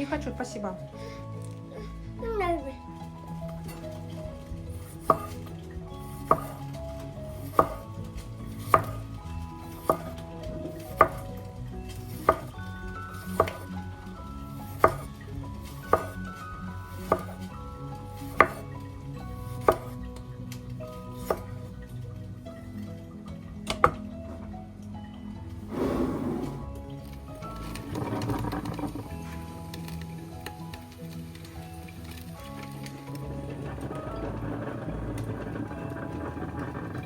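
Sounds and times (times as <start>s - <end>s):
soft background music: 0.0s - 37.0s
knife chopping on cutting board: 5.0s - 5.4s, 6.2s - 6.7s, 7.4s - 7.8s, 8.6s - 9.0s, 9.8s - 10.2s, 10.9s - 11.2s, 12.1s - 12.5s, 13.2s - 13.7s, 14.7s - 15.1s, 15.7s - 16.2s, 17.0s - 17.4s, 18.3s - 18.6s, 19.6s - 20.0s, 21.2s - 21.5s.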